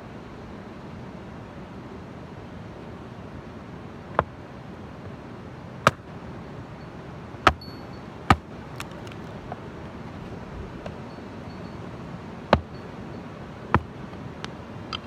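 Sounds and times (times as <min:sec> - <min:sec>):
wood being chopped: 0:05.9 - 0:06.2, 0:07.5 - 0:09.4, 0:12.5 - 0:12.8, 0:13.7 - 0:14.5.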